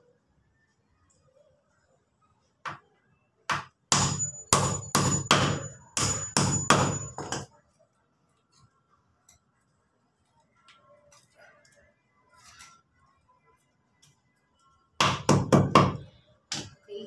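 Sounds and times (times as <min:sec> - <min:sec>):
hammer striking wood: 0:03.5 - 0:07.5, 0:15.0 - 0:16.7.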